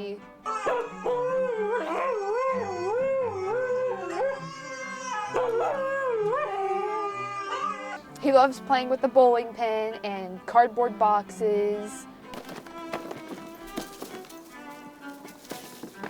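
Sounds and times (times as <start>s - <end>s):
husky howling: 0.4s - 8.1s.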